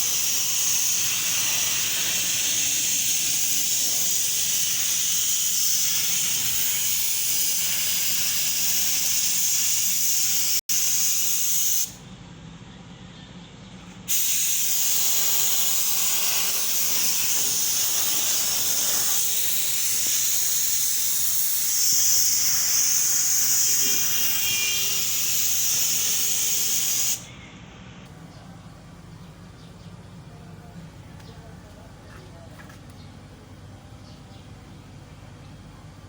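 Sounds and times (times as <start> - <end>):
paint spraying hiss: 0.0 - 12.0, 14.1 - 27.3.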